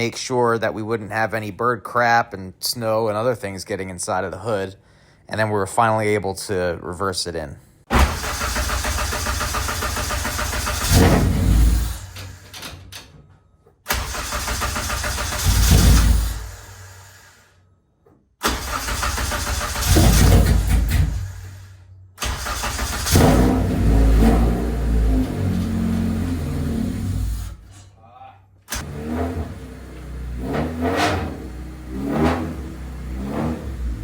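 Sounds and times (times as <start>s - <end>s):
car engine revving: 18.4s - 21.4s, 22.2s - 27.6s, 28.7s - 34.0s.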